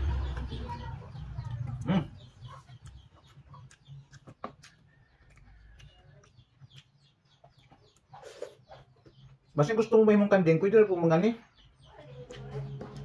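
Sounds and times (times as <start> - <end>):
eating clicks and smacks: 1.6 - 8.2.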